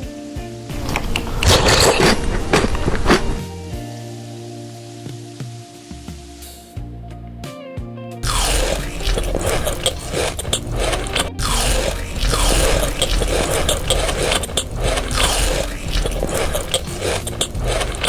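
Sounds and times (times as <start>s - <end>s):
crunching and chewing crisp food: 0.8s - 3.4s, 8.2s - 18.0s.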